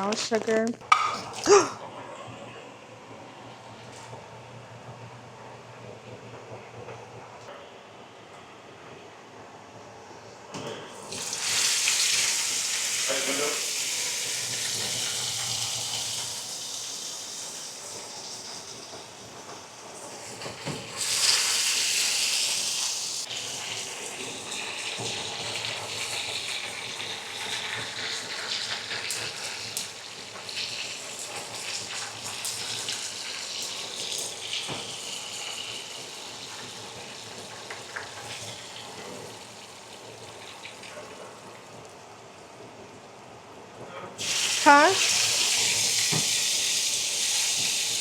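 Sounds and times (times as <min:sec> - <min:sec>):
meat sizzling in a frying pan: 0:11.0 - 0:19.4, 0:20.0 - 0:41.4, 0:44.2 - 0:48.0.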